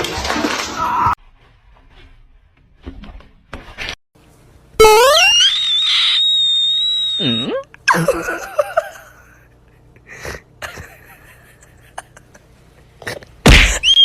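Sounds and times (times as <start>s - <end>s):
loud high shriek: 4.8s - 7.6s
short wavering cries: 4.8s - 7.7s.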